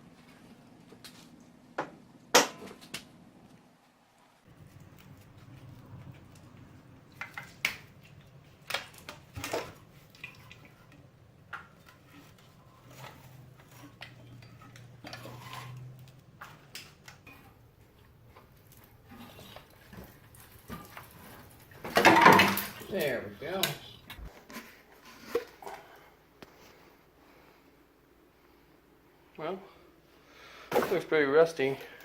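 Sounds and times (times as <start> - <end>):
metal tools and parts clanking: 19.1 - 24.3.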